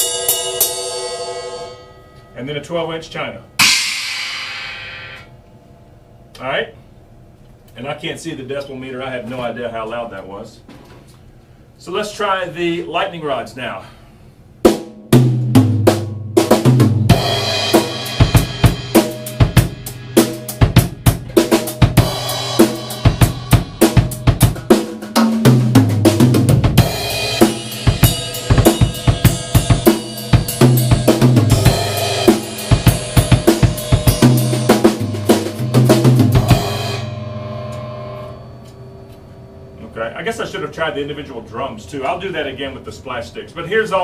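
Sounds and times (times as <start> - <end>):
cymbals ringing: 0.0 - 6.1, 17.1 - 25.4, 26.8 - 41.3
drum kit groove: 3.6 - 5.3, 14.6 - 38.3.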